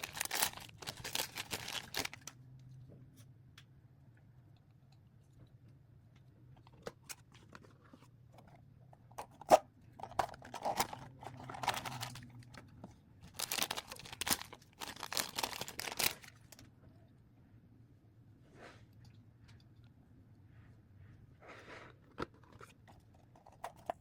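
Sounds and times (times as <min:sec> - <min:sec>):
plastic packaging crinkling and tearing: 0:00.0 - 0:02.3, 0:09.5 - 0:12.6, 0:13.2 - 0:16.7.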